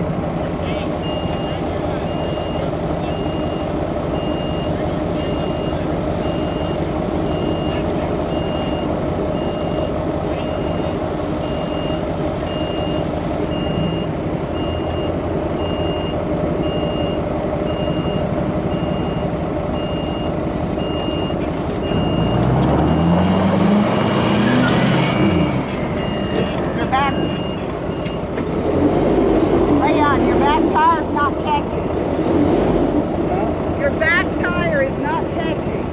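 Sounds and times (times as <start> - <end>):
diesel engines under load: 0.0 - 35.9
reversing alarm beeping: 1.0 - 28.9
engine revving: 4.1 - 35.9.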